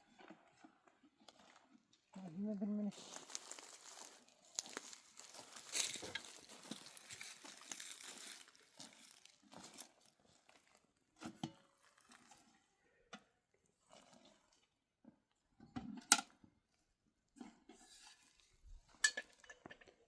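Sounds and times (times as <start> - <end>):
rustling and crinkling: 0.0 - 12.7.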